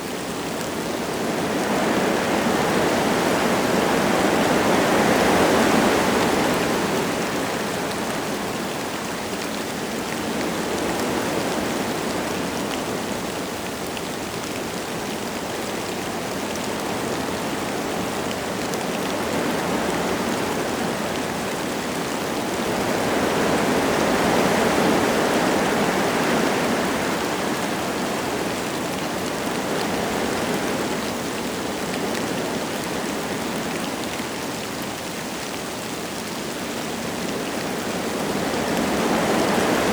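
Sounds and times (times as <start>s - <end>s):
light rain falling: 0.0s - 39.9s
wind gusting through trees: 0.0s - 39.9s.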